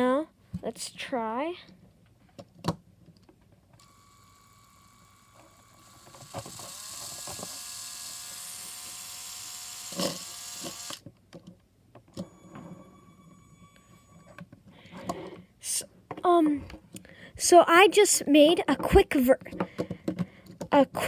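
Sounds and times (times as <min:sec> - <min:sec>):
toy train motor whirring: 0:03.8 - 0:11.0, 0:12.2 - 0:14.4
motor knock: 0:05.5 - 0:11.0.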